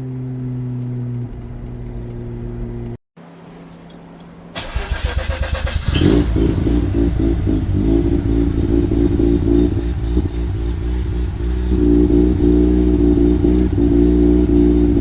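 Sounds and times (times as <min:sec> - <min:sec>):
engine idling: 0:04.6 - 0:15.0.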